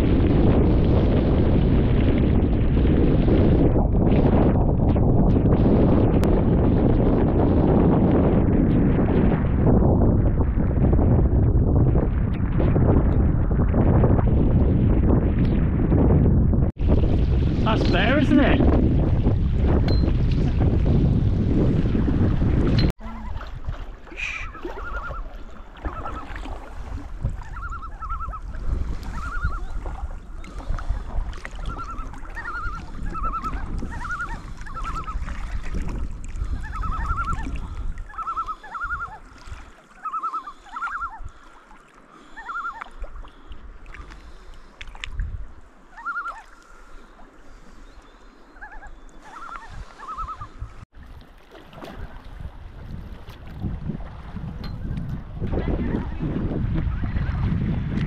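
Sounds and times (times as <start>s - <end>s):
water lapping against canoe: 0.0s - 58.0s
wind on microphone: 0.0s - 58.0s
bird calling: 24.1s - 26.5s, 27.4s - 28.5s, 29.1s - 35.3s, 36.5s - 39.3s, 39.9s - 43.6s, 45.9s - 50.8s.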